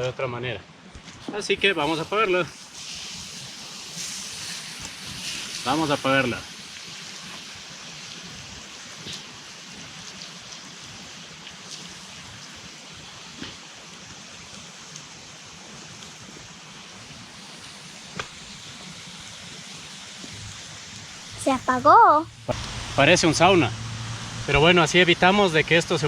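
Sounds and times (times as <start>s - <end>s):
water poured on fire: 1.0s - 21.4s, 22.5s - 26.0s
embers hissing: 1.2s - 26.0s
sharp pops: 18.1s - 18.6s.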